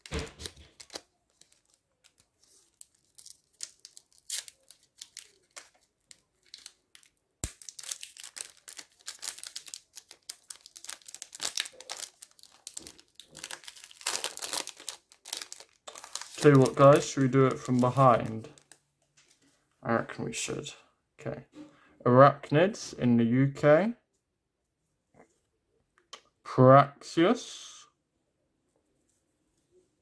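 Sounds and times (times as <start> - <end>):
wrapper crinkling and tearing: 0.0 - 18.8
wrapper snapping: 0.0 - 18.8.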